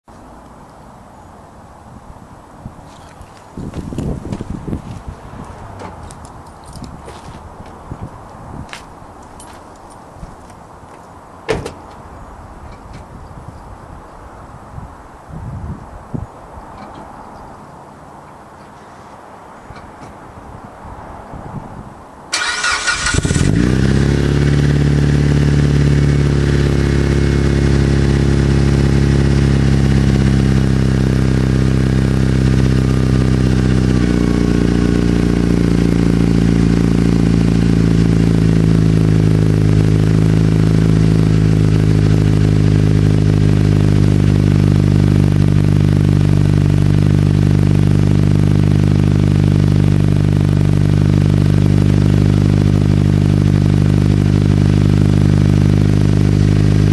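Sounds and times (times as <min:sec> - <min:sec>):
car engine starting and idling: 0:22.3 - 0:56.9.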